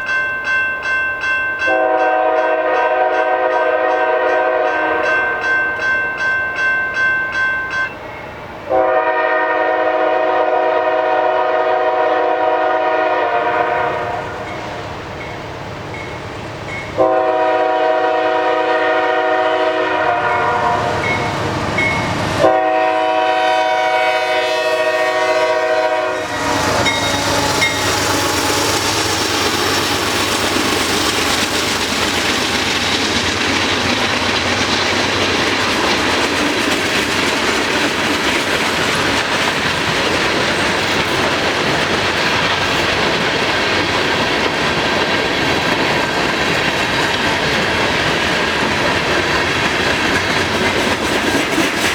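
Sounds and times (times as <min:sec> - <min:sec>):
freight train running on rails: 0:00.0 - 0:51.9
locomotive horn chords: 0:01.7 - 0:05.2, 0:08.7 - 0:14.4, 0:17.0 - 0:28.8.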